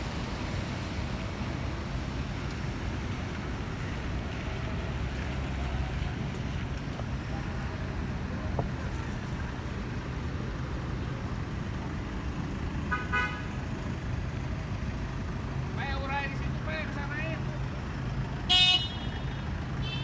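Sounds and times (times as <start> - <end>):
road traffic rumble: 0.0 - 20.0
vehicle horn toot: 12.9 - 13.5, 18.5 - 20.0.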